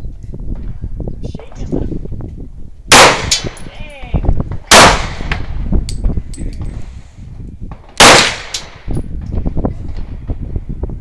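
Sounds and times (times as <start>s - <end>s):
loud gunshots: 2.9s - 3.6s, 4.7s - 5.5s, 8.0s - 8.8s.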